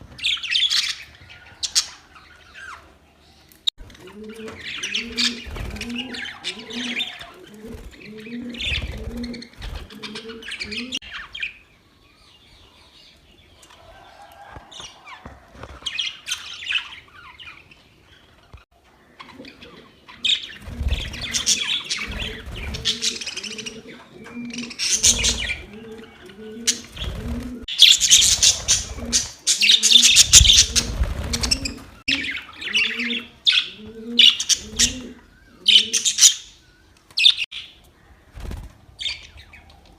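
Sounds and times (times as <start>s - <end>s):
budgerigars chirping and warbling: 0.2s - 2.9s, 4.2s - 11.6s, 19.2s - 36.6s.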